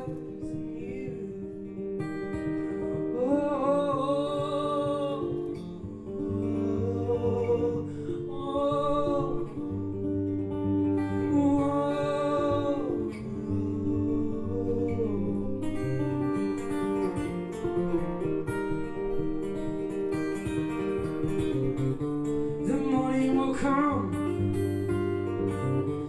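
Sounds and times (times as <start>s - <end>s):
wordless vocal: 0.0s - 18.4s, 22.6s - 24.3s
acoustic guitar strumming: 0.0s - 26.0s.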